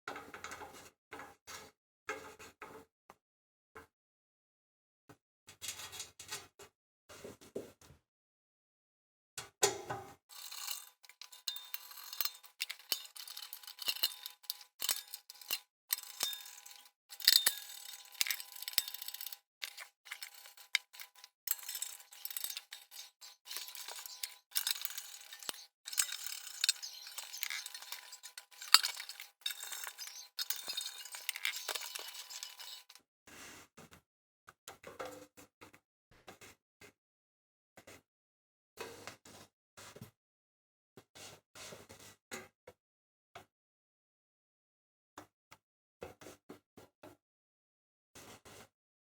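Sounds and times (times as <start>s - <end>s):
metal parts clinking and scraping: 10.3s - 33.0s.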